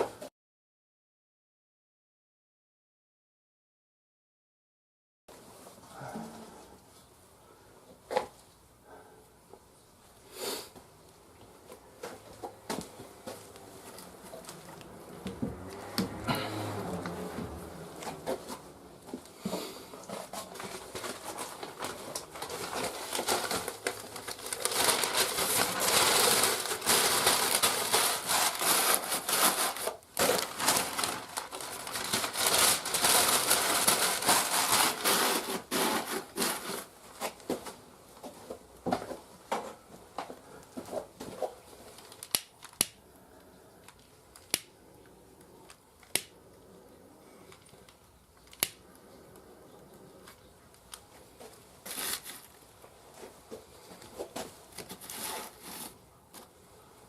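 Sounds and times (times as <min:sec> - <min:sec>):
firewood crackling and popping: 0:41.8 - 0:43.0, 0:47.6 - 0:48.9.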